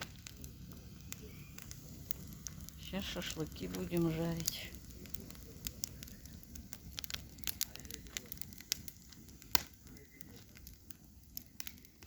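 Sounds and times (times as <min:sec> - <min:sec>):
sharp pops from fire: 0:00.0 - 0:12.0
wood fire crackling: 0:00.0 - 0:12.0.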